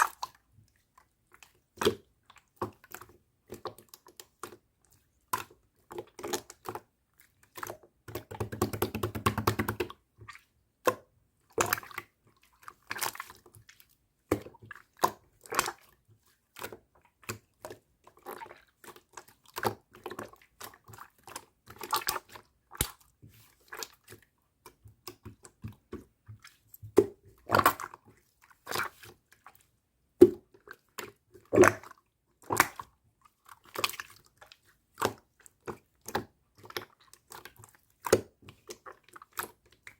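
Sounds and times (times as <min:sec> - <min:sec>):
slime squished by hand: 0:16.6 - 0:29.6, 0:30.2 - 0:39.9.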